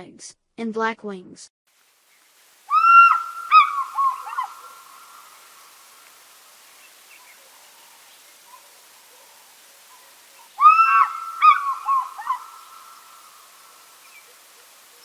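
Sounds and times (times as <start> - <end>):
fish eagle calling: 2.7 - 5.8, 9.9 - 15.0.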